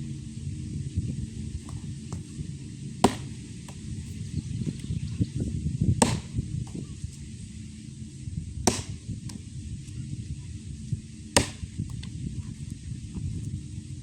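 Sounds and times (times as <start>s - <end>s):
axe strikes into wood: 3.0s - 3.8s, 6.0s - 6.8s, 8.6s - 9.4s, 11.4s - 11.8s.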